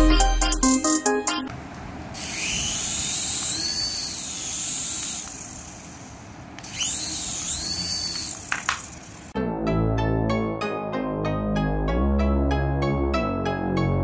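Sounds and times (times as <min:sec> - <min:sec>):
toy aircraft motor whirring: 0:02.1 - 0:09.4.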